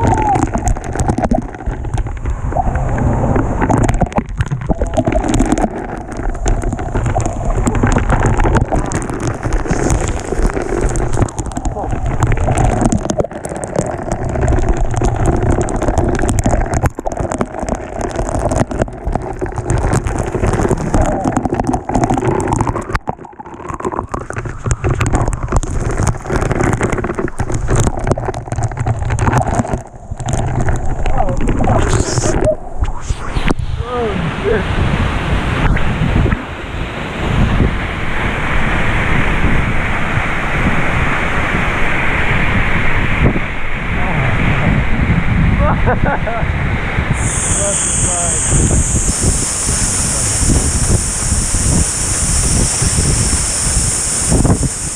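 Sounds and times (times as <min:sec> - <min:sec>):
crackles and knocks: 0:00.0 - 0:33.7
waterfall rushing: 0:47.2 - 0:54.9.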